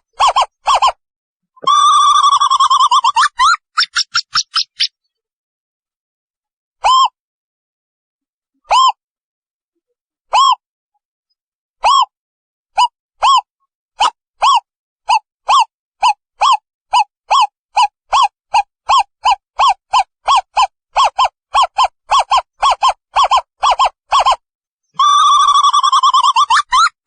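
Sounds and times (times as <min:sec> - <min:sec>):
owl rapid trill: 0:00.0 - 0:01.0, 0:01.6 - 0:05.0, 0:12.8 - 0:24.4, 0:25.0 - 0:27.0.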